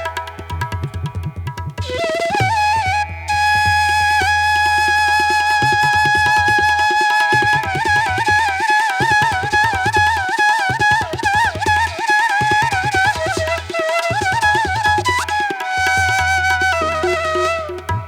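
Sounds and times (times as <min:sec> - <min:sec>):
flute melody: 0:00.0 - 0:00.7, 0:01.8 - 0:18.0.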